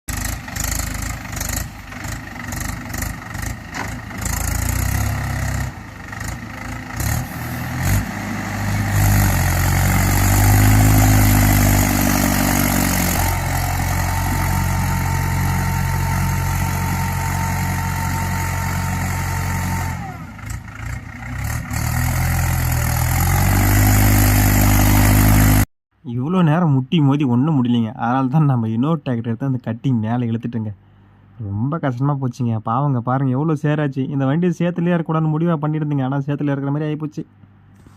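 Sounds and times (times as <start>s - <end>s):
tractor diesel engine revving: 0.1s - 25.7s.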